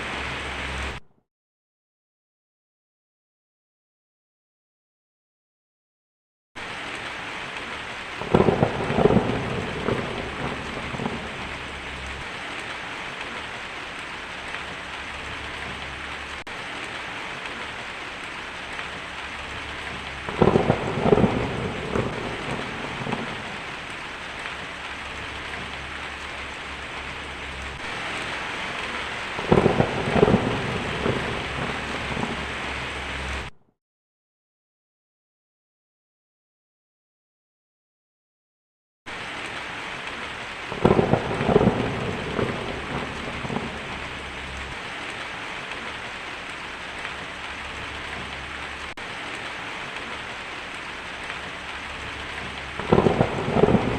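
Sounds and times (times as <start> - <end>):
heavy rain: 0.0 - 1.0, 6.6 - 33.6, 39.1 - 53.9
thunder rumbling: 7.6 - 33.5, 40.2 - 53.9.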